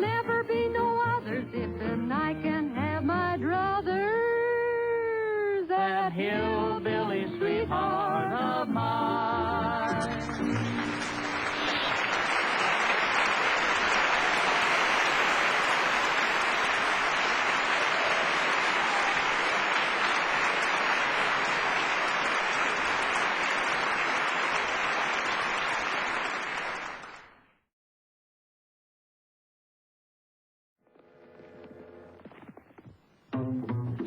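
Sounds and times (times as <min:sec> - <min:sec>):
audience applause: 0:10.0 - 0:27.4.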